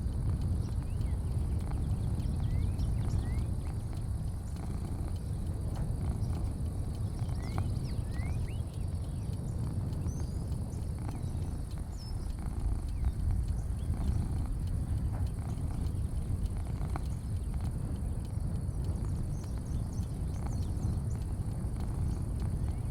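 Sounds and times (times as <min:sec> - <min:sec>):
light clicks: 0:00.0 - 0:22.9
low rumble: 0:00.0 - 0:22.9
bird chirps: 0:00.6 - 0:22.9.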